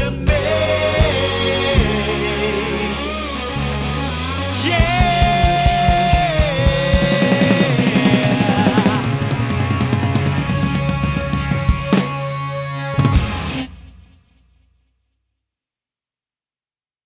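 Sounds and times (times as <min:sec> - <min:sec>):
rock band playing: 0:00.0 - 0:14.2
drum hits: 0:04.6 - 0:12.3.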